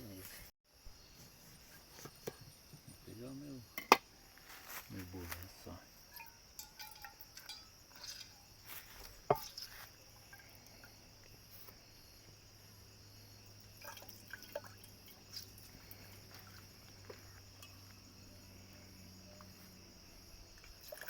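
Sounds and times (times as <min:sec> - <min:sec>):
high-pitched insect chorus: 0:00.0 - 0:21.0
small clinks and knocks: 0:05.3 - 0:11.4, 0:13.6 - 0:18.1.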